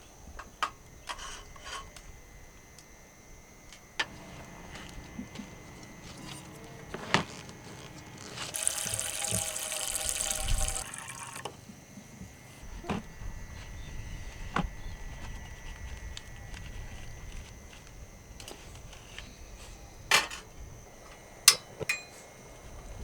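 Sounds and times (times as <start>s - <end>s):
water poured into container: 8.5s - 11.6s.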